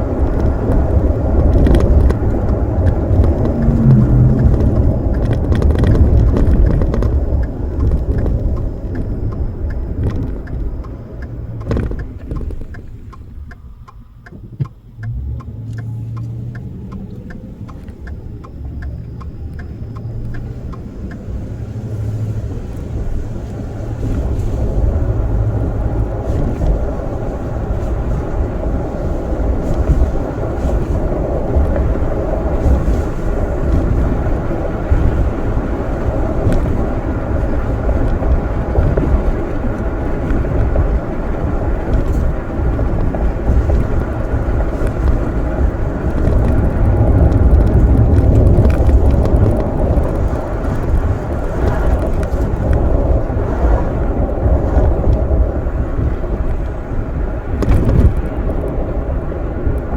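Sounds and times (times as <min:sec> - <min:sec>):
deep rolling rumble: 0:00.0 - 0:59.9
faint even ticking: 0:00.4 - 0:31.0.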